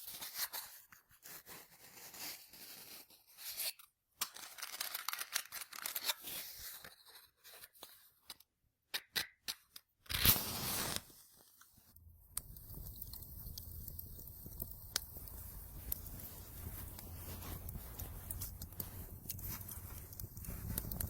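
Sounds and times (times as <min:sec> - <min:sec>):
paper rustling and crumpling: 0:04.2 - 0:08.0, 0:13.6 - 0:21.0.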